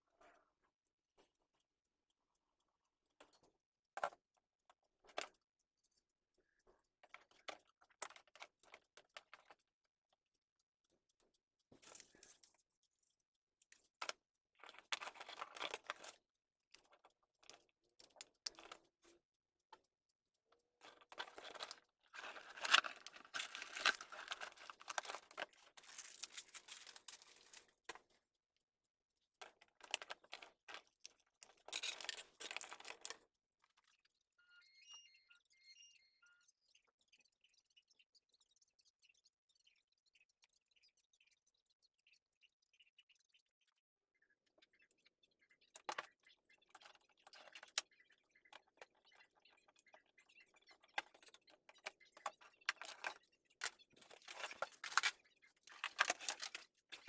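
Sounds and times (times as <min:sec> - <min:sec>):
small clicks and taps: 0:13.6 - 0:20.1
plastic packaging crinkling: 0:21.2 - 0:27.7, 0:54.0 - 0:57.0.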